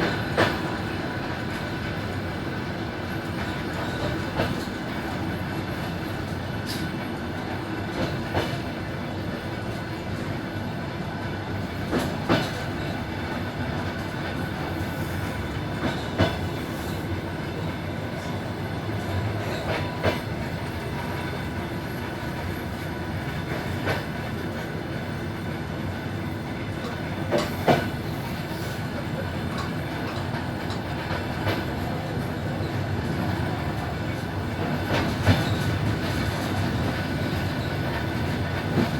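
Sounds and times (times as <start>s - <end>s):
train rumbling on track: 0.0s - 38.9s
wheels clacking on rail joints: 3.1s - 6.0s, 11.8s - 21.4s, 26.8s - 28.8s, 29.4s - 38.9s.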